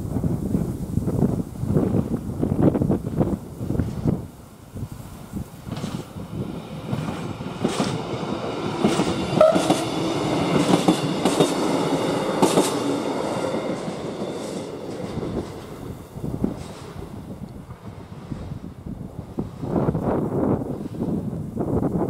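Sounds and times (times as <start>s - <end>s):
train rolling rumble: 0.0s - 22.0s
train wheels clacking over rail joints: 5.6s - 18.6s.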